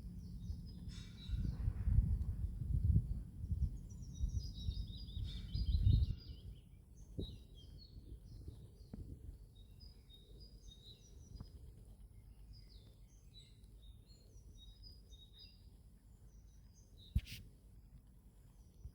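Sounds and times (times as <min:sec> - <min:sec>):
low outdoor rumble: 0:00.0 - 0:09.4
small birds chirping: 0:00.0 - 0:17.6.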